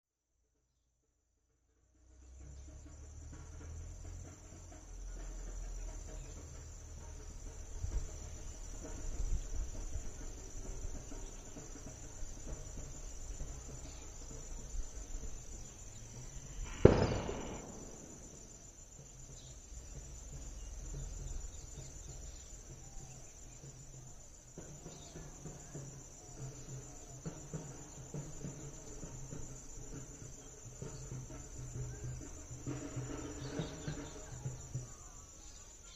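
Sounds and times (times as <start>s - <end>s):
insects chirring: 2.1s - 35.9s
sharp loud knock: 16.7s - 18.5s.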